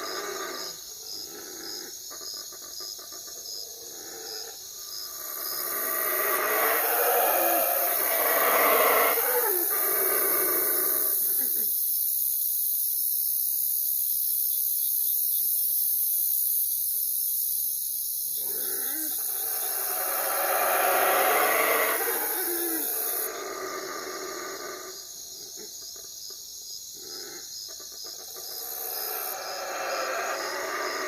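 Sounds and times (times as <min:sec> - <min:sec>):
steady high hiss: 0:04.7 - 0:24.0
owl calling: 0:19.1 - 0:23.4.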